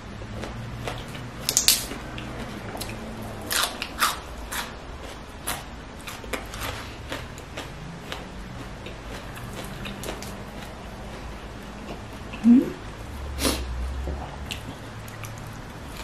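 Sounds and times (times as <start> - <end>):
crunching and chewing kale: 0.2 - 12.4, 14.2 - 16.0.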